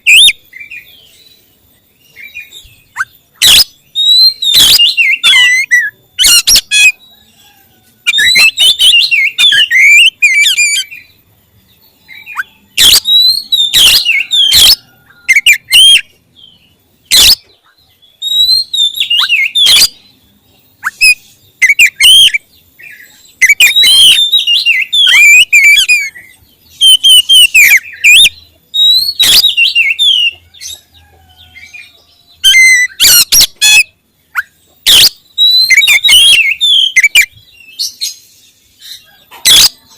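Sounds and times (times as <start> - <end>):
bird singing whistles and clicks: 26.8 - 30.3.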